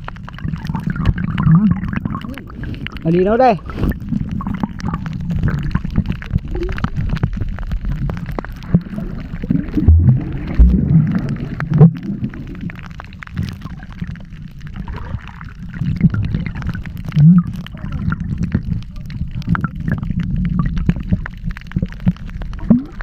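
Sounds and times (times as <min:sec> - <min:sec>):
steady low rumble: 0:00.0 - 0:23.0
water gurgling and sloshing: 0:00.0 - 0:23.0
low thumps: 0:08.7 - 0:12.1.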